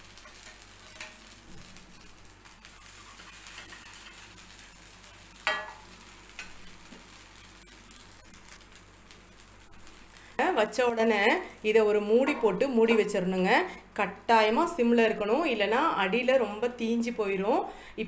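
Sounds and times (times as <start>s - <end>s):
food sizzling on a griddle: 0.0s - 12.8s.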